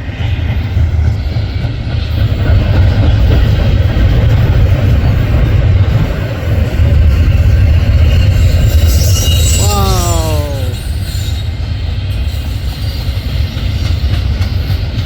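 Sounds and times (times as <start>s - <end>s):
train wheels rumbling on rail: 0.0s - 9.6s, 11.4s - 15.0s.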